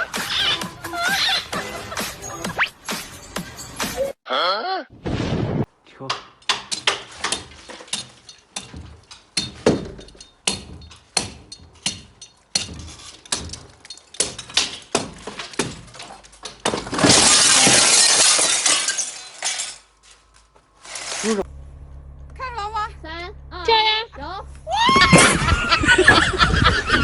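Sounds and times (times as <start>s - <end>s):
sharp irregular impacts: 5.0s - 20.0s.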